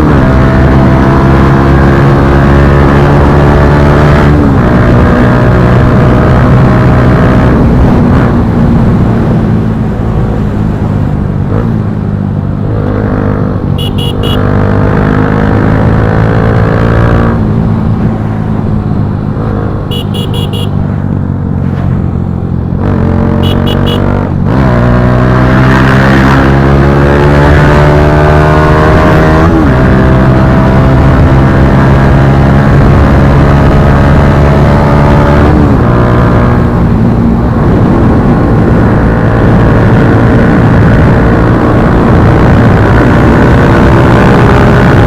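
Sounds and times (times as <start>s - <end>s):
motorcycle engine accelerating: 0.0s - 45.0s
short high beeps: 13.8s - 14.4s, 19.9s - 20.7s, 23.4s - 24.0s.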